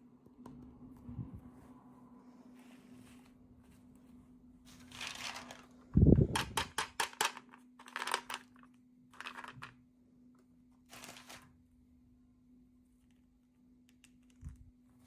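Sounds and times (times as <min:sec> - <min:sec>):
plastic packaging rustling: 0:04.7 - 0:05.9, 0:09.2 - 0:09.8, 0:10.8 - 0:11.6.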